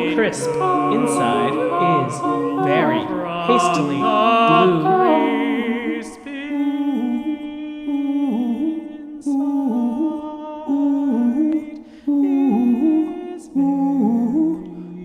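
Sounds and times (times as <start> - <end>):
choir humming chords: 0.0 - 15.0
singers breathing: 11.8 - 12.1.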